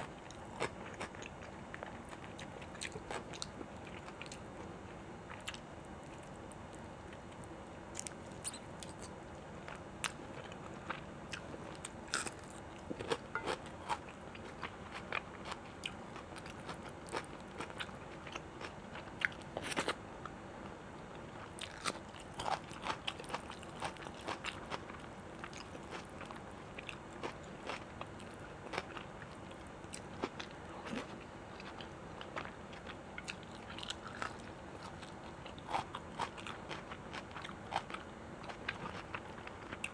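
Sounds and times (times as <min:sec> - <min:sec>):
food crunching: 0:09.7 - 0:20.0, 0:21.5 - 0:39.9
chewing and biting: 0:21.6 - 0:39.9.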